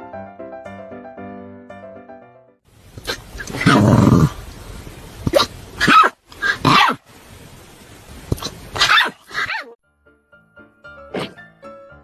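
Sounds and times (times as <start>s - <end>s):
dog barking: 5.3s - 7.0s, 8.8s - 9.8s.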